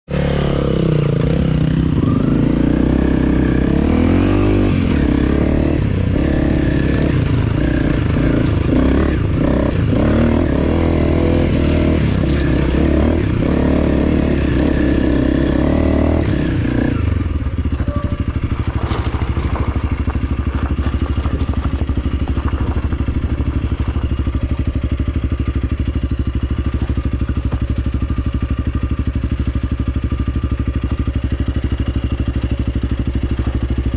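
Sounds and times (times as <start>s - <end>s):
motorcycle engine revving under load: 0.1s - 33.9s
motorcycle engine idling: 4.8s - 11.2s, 16.3s - 33.9s.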